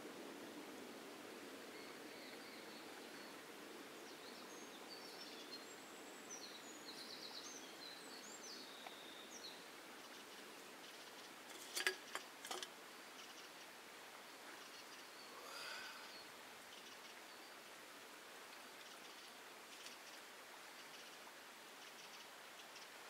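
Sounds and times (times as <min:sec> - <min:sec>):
faint high bird chirps: 0:21.8 - 0:23.0.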